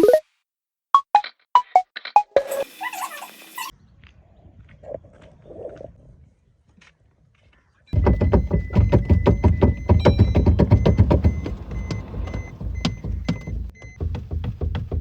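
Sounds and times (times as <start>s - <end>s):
dashboard chime beeping: 8.0s - 14.9s
car engine cranking: 8.0s - 15.0s.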